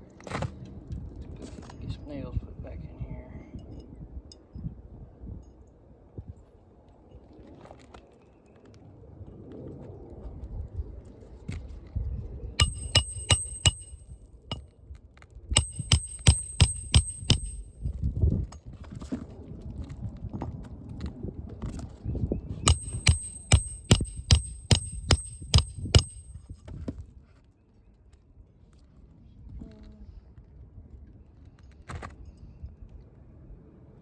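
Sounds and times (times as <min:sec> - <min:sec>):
hammer striking roofing nails: 0:12.6 - 0:14.0, 0:15.6 - 0:17.7, 0:22.7 - 0:26.4.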